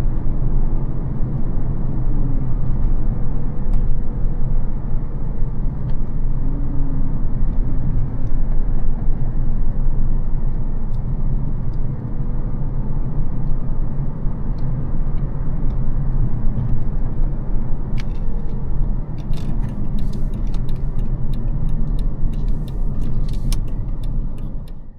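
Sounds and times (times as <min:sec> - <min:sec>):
car engine and road rumble: 0:00.0 - 0:24.9.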